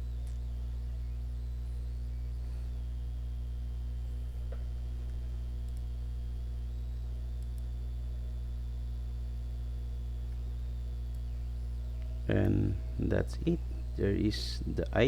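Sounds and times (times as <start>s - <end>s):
low electrical hum: 0.0s - 15.0s
faint click: 4.5s - 5.9s, 7.4s - 7.7s.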